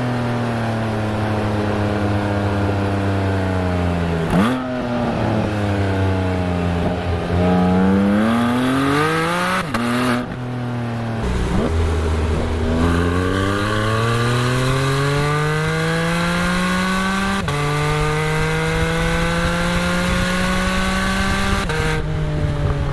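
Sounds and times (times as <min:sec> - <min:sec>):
car engine exhaust revving: 0:11.2 - 0:17.6.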